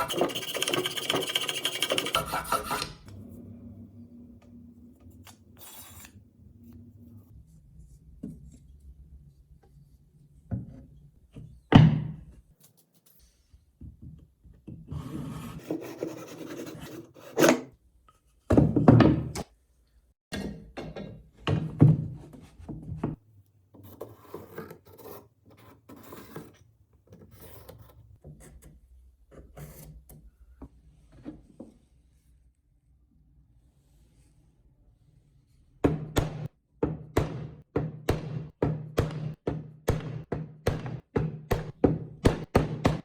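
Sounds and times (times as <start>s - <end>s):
filing and rubbing strokes: 0.0s - 3.1s.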